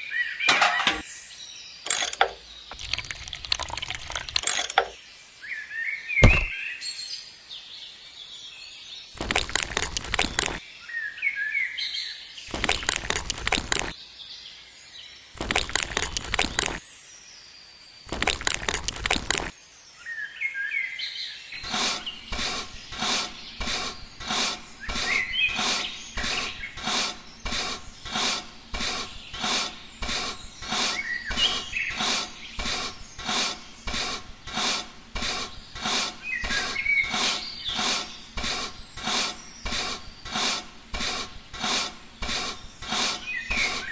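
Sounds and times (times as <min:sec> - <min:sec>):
birds chirping: 0:00.0 - 0:07.0, 0:08.7 - 0:14.1, 0:14.8 - 0:16.9, 0:18.0 - 0:20.0, 0:21.4 - 0:43.9.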